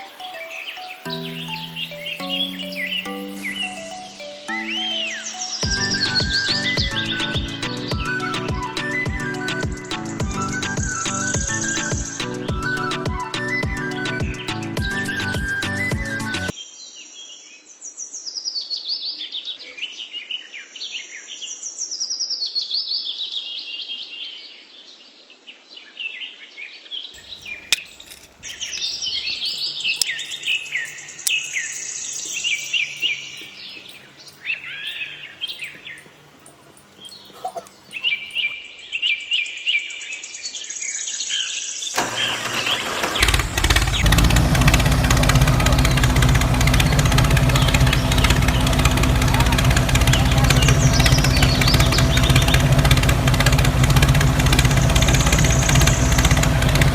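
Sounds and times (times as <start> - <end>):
small birds chirping: 0.0 - 16.6, 27.2 - 56.9
loud engine running: 5.6 - 13.0, 13.7 - 16.5, 42.0 - 56.9.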